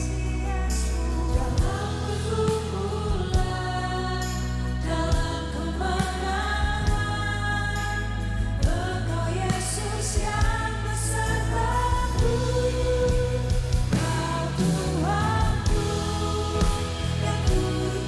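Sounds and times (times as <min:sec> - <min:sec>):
band playing worship song: 0:00.0 - 0:18.0
people singing: 0:00.0 - 0:18.0
drum hits: 0:13.1 - 0:18.0.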